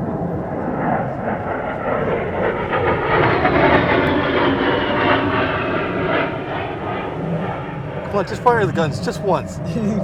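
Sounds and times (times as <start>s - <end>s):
jet flying past: 0.0s - 10.0s.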